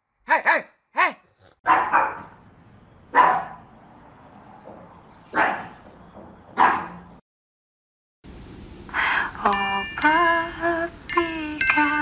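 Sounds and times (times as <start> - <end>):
dog barking: 0.5 - 2.4, 3.1 - 3.7, 5.3 - 5.8, 6.6 - 7.1.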